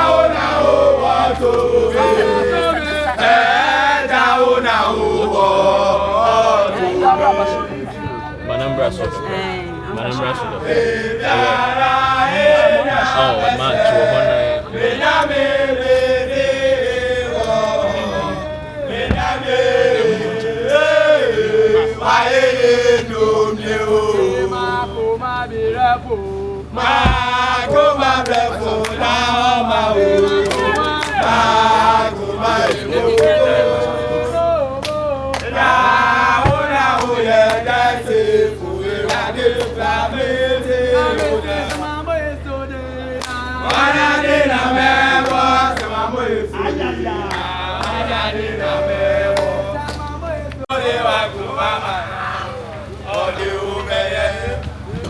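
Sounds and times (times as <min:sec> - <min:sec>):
voices singing a chant: 0:00.0 - 0:55.0.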